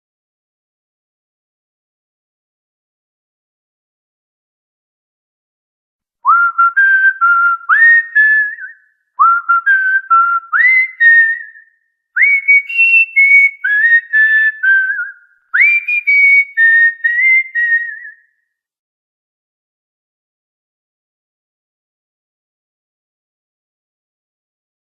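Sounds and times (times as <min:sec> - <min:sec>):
cockatiel whistling melody: 0:06.3 - 0:11.6, 0:12.2 - 0:18.3.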